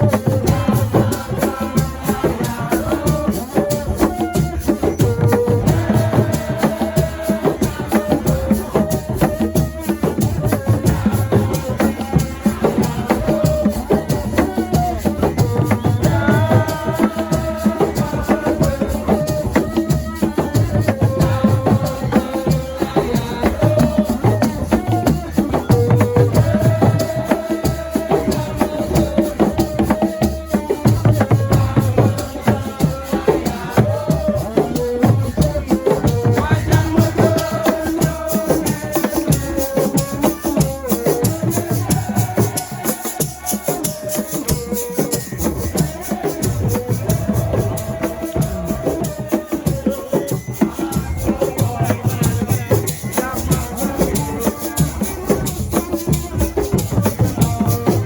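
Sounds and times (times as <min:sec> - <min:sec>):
hand percussion: 0:00.0 - 0:58.0
voices singing: 0:00.0 - 0:58.0
rattling shaker: 0:30.2 - 0:58.0.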